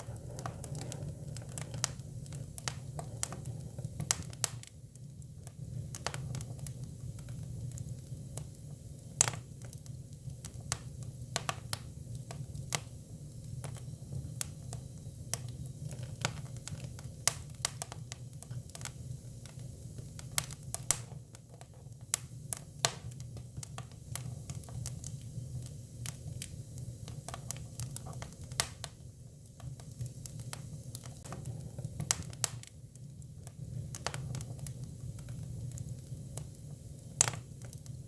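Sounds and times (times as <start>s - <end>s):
firewood popping and crackling: 0.0s - 8.5s, 22.8s - 29.0s, 29.6s - 38.0s
low rumble of fire: 0.0s - 38.0s.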